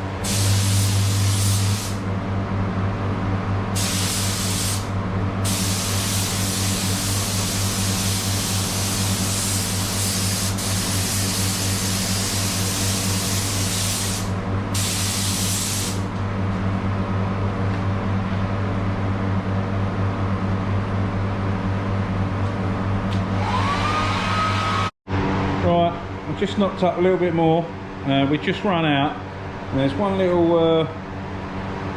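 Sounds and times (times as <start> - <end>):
paint spray gun hissing: 0.2 - 2.0, 3.8 - 16.0.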